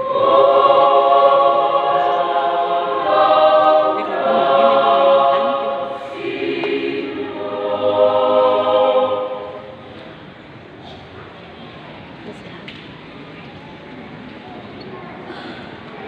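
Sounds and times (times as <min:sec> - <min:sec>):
mixed choir singing chords: 0:00.0 - 0:10.6.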